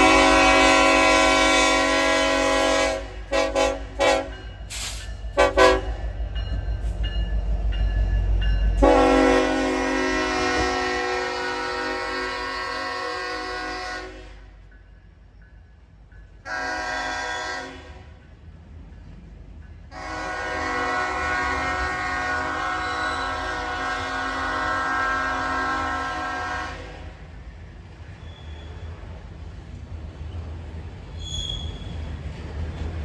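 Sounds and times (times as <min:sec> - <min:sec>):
locomotive air horn blasts: 0:00.0 - 0:06.0, 0:08.8 - 0:14.6, 0:16.5 - 0:18.2, 0:19.9 - 0:27.2
low train rumble: 0:00.0 - 0:33.0.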